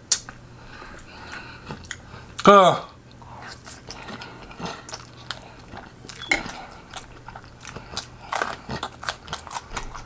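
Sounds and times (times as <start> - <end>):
person chewing food: 0.0 - 2.4, 3.0 - 10.0
wet mouth clicks and smacks: 0.1 - 0.4.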